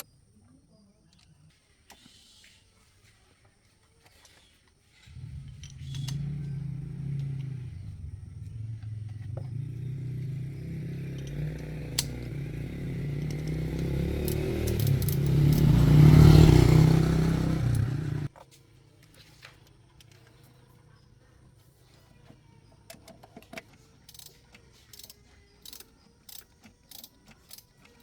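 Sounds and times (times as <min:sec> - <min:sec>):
car engine running: 0:05.1 - 0:18.3.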